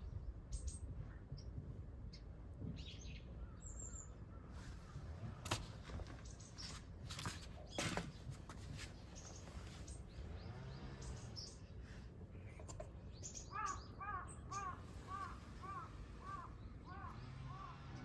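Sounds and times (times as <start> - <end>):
crow-like caw: 13.5 - 18.0.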